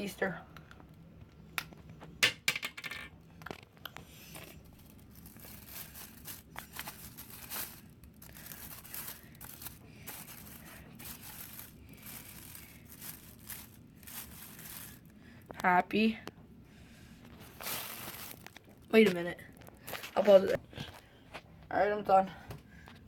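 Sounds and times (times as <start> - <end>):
plastic bag crinkling: 4.2 - 15.7, 17.3 - 20.6.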